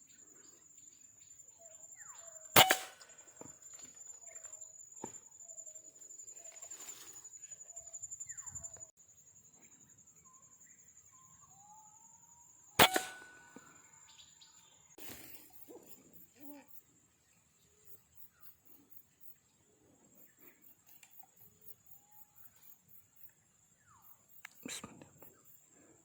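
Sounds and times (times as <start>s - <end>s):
air rifle shot: 2.6s - 3.2s, 12.8s - 13.7s.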